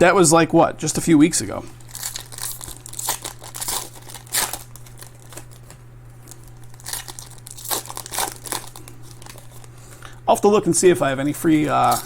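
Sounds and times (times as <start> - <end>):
foil wrappers crinkling and tearing: 1.8 - 10.2, 11.2 - 12.0.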